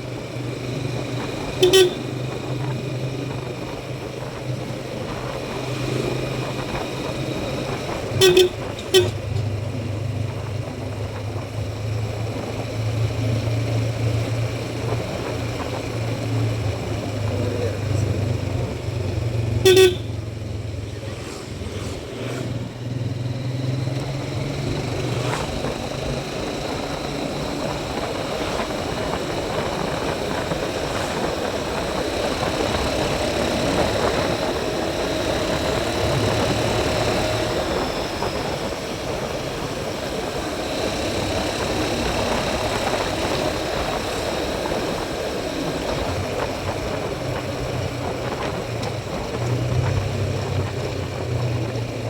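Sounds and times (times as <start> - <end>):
motorcycle engine running: 0.0 - 52.0
wind noise: 24.3 - 52.0.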